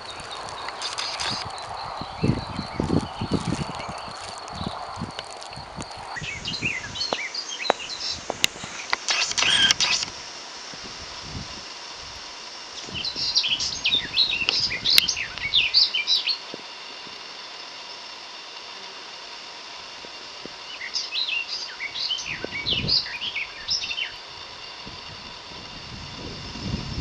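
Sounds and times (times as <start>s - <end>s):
songbird chirping: 0.0s - 10.0s, 12.7s - 16.6s, 20.6s - 24.3s
steady outdoor hiss: 0.0s - 27.0s.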